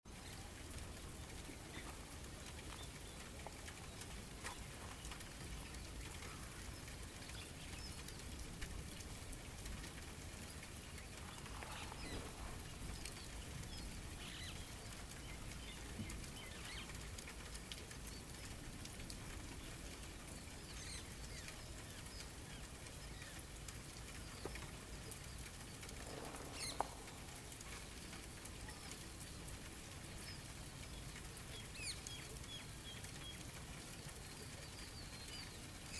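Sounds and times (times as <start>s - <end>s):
small clicks and patter: 0.1s - 35.9s
soft hiss: 0.1s - 35.9s
bird chirps: 24.2s - 29.5s.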